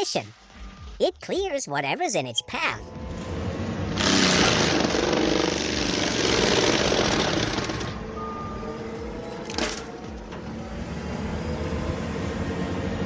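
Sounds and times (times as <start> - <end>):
loader engine running: 2.9 - 13.0
mulcher grinding through brush: 4.0 - 8.0.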